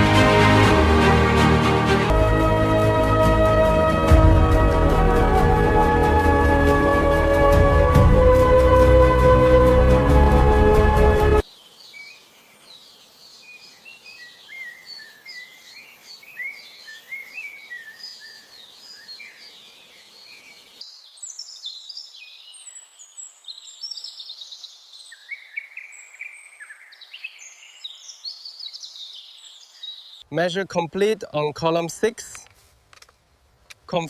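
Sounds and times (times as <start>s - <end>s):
birds chirping and singing: 11.4s - 30.3s.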